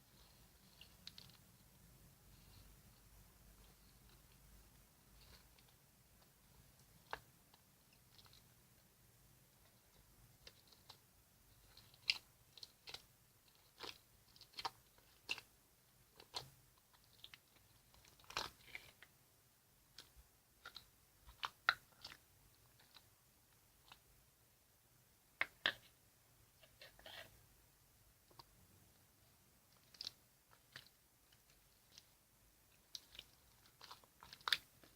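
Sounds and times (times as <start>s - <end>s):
slime squelching: 9.6s - 19.2s, 19.8s - 24.2s, 28.2s - 34.9s.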